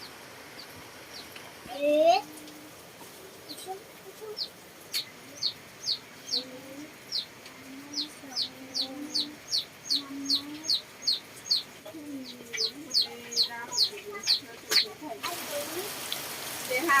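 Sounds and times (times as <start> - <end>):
chicks peeping: 0.0 - 1.6, 2.3 - 15.4
hen calls: 4.3 - 15.5.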